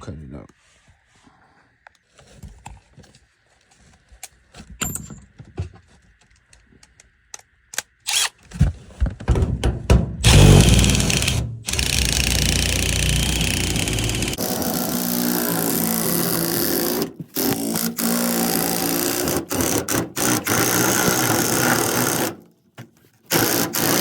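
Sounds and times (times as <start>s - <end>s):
tools knocking and tapping: 9.2s - 10.3s
power tool cutting: 10.2s - 22.4s, 23.3s - 24.0s.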